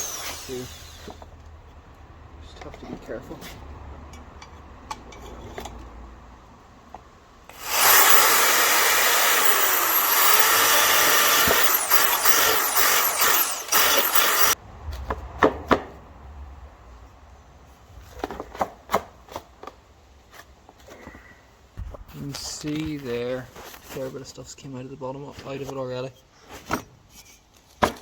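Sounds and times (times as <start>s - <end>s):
electric drill grinding: 0.0s - 1.2s, 7.5s - 14.6s.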